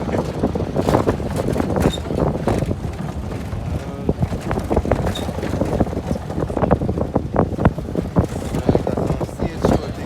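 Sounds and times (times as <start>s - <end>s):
knocks and clatters: 0.0s - 10.0s
wind buffeting microphone: 0.0s - 10.0s.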